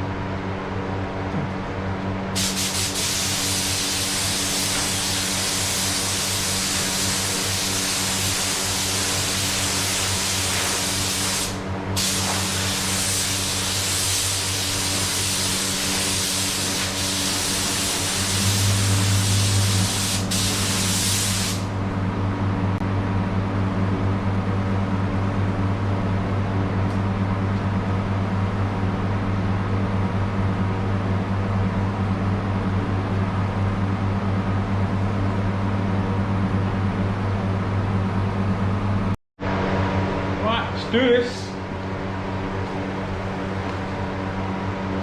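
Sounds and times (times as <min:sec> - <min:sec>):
steady machine hum: 0:00.0 - 0:45.0
spray gun hissing: 0:02.4 - 0:21.7.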